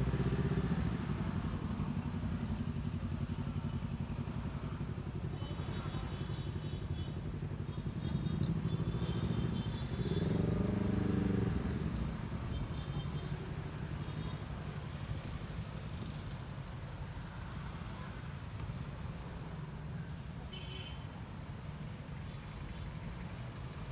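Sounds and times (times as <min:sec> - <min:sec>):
road and wind rumble: 0:00.0 - 0:05.0, 0:08.5 - 0:12.7.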